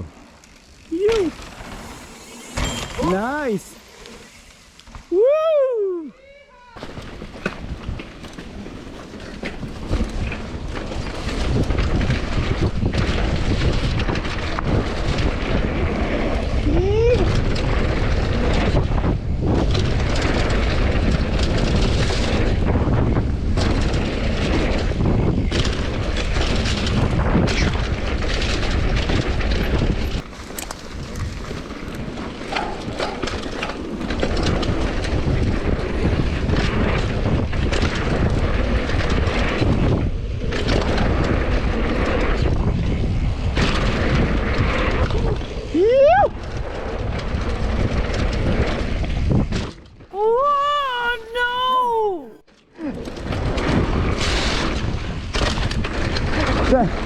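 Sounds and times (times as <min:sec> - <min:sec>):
tyres rolling over dirt: 0:00.0 - 0:05.1
wind rushing over microphone: 0:07.0 - 0:50.4.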